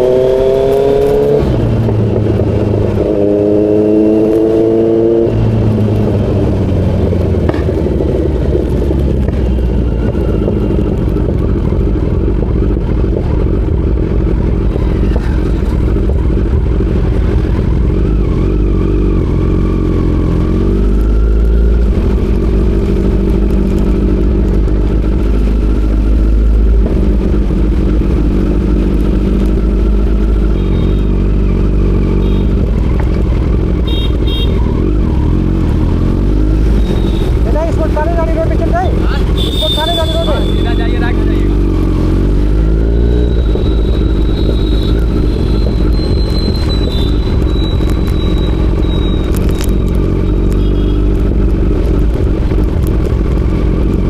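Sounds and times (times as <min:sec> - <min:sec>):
motorcycle engine revving: 0:00.0 - 0:54.0
wind rumble on microphone: 0:01.3 - 0:30.0.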